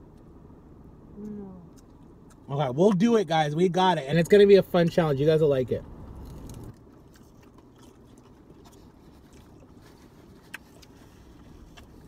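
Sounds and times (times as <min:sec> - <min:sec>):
low background hum: 0:00.0 - 0:12.0
faint chewing of salad: 0:06.1 - 0:12.0.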